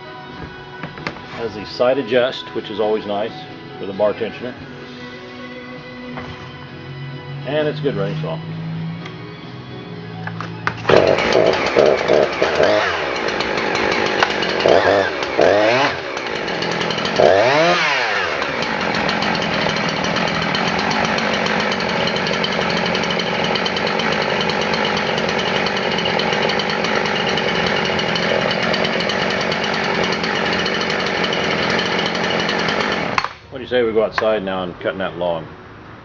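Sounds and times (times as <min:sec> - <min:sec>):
chainsaw revving: 0:10.6 - 0:33.4.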